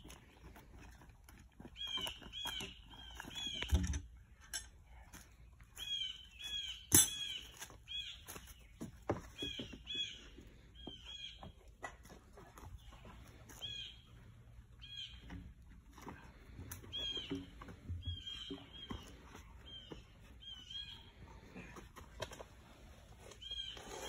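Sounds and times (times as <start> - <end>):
bird chirping: 1.7 - 4.1, 5.7 - 11.7, 12.6 - 15.5, 16.8 - 21.7, 23.3 - 24.0.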